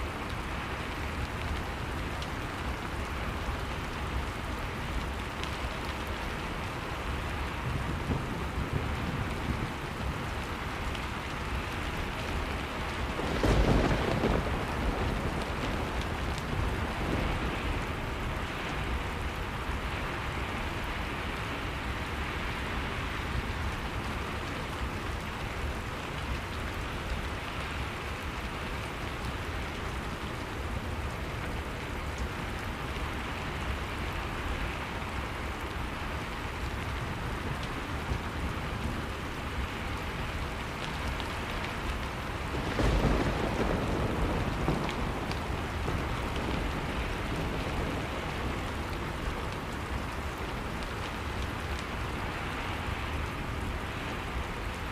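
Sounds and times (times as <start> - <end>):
steady rain: 0.0 - 54.9
thunderclap rumbling: 12.4 - 18.2, 42.4 - 50.1.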